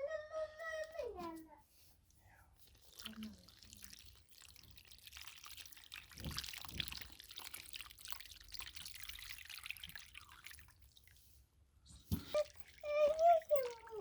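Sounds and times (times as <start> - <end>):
water splashing and dripping: 2.6 - 11.4, 12.0 - 14.0.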